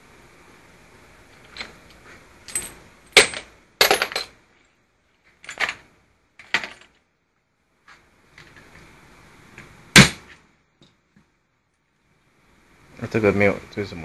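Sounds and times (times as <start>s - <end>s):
metal parts clicking and clanking: 1.3s - 4.4s, 5.4s - 7.0s.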